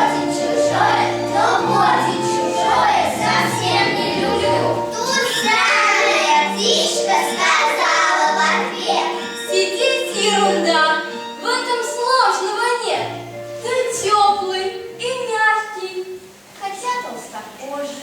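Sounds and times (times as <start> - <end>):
children singing: 0.0 - 10.8
instrumental accompaniment: 0.0 - 15.4.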